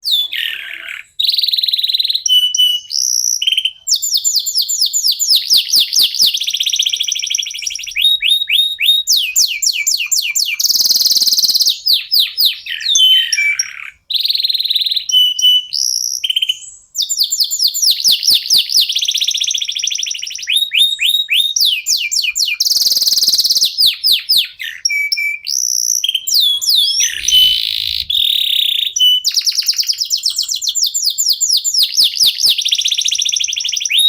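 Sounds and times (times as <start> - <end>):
canary singing trills: 0.0 - 34.0.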